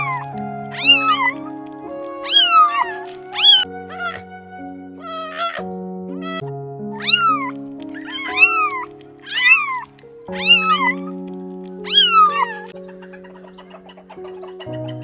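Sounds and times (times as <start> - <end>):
cat meowing: 0.0 - 4.2, 5.0 - 6.4, 7.0 - 12.7
background music with held notes: 0.0 - 15.0.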